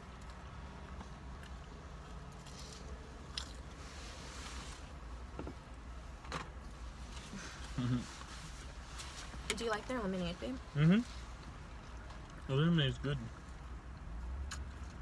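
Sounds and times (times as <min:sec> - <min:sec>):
people chewing fried food: 0:00.0 - 0:03.8, 0:07.2 - 0:08.8, 0:10.8 - 0:15.0.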